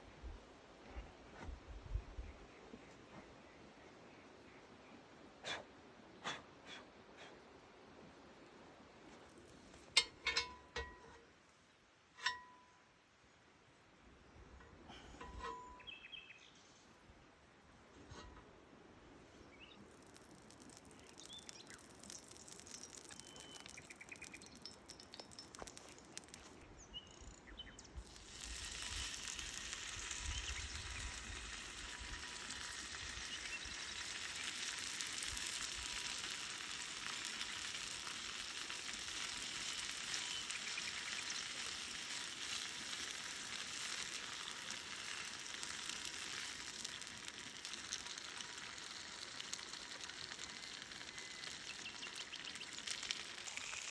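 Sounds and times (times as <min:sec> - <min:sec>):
faint bird chirps: 0:19.4 - 0:28.0
food sizzling in a pan: 0:19.8 - 0:26.6, 0:28.0 - 0:53.9.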